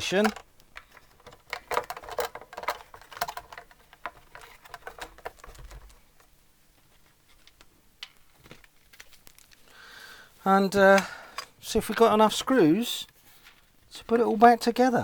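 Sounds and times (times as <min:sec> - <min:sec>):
guitar parts clicking and tapping: 0:00.0 - 0:06.0.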